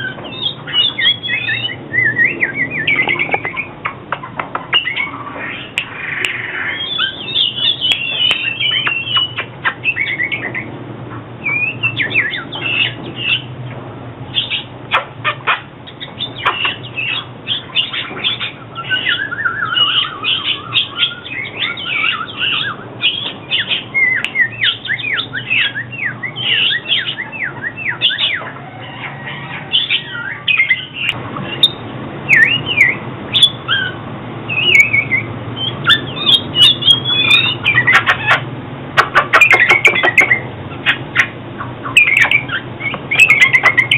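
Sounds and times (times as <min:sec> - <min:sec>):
bird singing whistled phrases: 0:00.0 - 0:03.7, 0:04.7 - 0:10.7, 0:11.4 - 0:13.5, 0:15.9 - 0:28.5, 0:29.1 - 0:38.0, 0:41.8 - 0:43.9.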